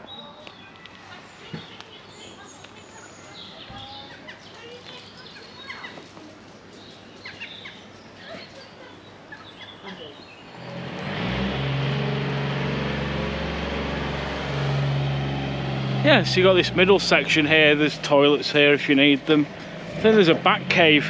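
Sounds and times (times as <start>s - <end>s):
small birds chirping: 0.0s - 10.8s
car engine humming: 10.4s - 21.0s.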